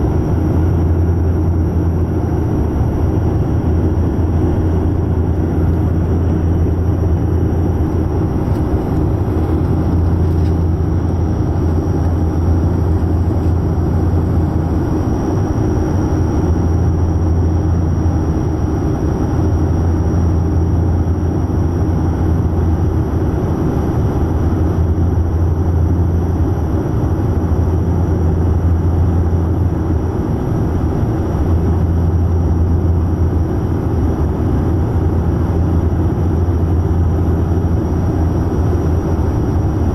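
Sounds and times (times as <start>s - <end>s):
airplane engine hum: 0.0s - 39.9s
cabin air noise: 0.0s - 39.9s.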